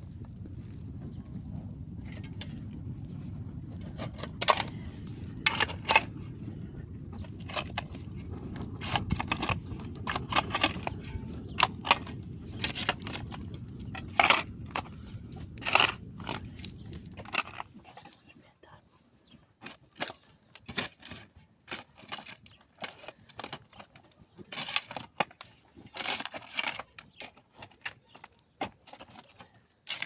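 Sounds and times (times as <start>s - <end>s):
steady low rumble: 0.0s - 17.6s.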